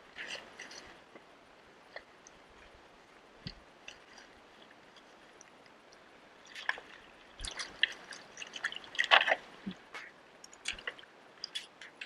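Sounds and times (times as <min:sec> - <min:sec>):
water dripping and splashing: 0:03.4 - 0:12.0.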